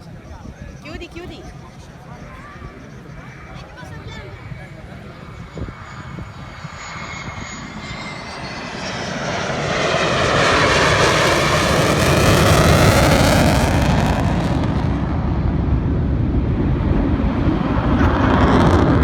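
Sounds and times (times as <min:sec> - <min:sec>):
jet engines rushing: 0:00.0 - 0:19.0
faint whine falling in pitch: 0:04.4 - 0:15.4.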